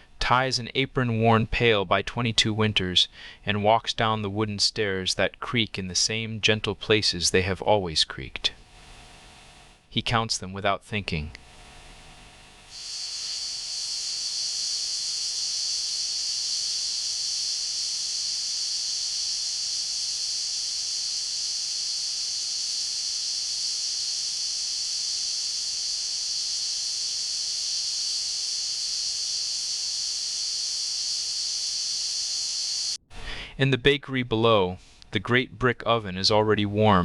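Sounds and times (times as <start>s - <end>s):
high-pitched hiss: 11.3s - 33.0s.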